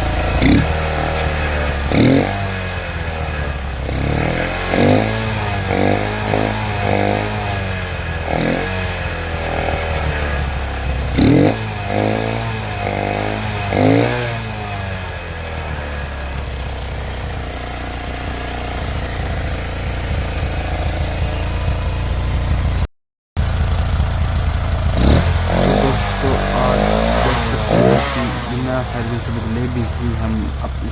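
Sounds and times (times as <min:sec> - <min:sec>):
motorcycle engine revving and idling: 0:00.0 - 0:30.9.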